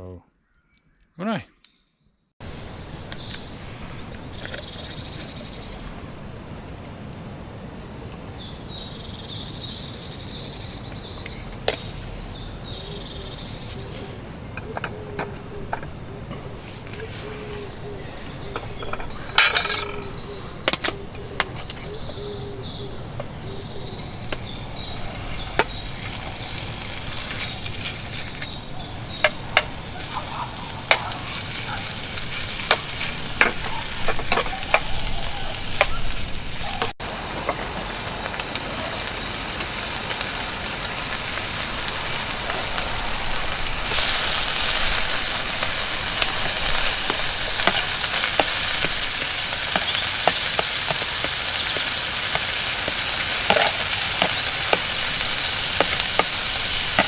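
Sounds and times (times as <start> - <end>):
wood fire crackling and hissing: 2.4 - 57.0
sharp pops of fire: 22.9 - 35.0, 40.0 - 57.0.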